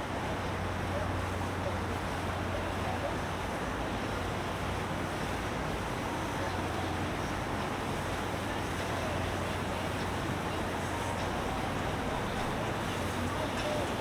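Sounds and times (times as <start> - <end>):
water wash: 2.2 - 14.0
boat engine humming: 8.3 - 14.0.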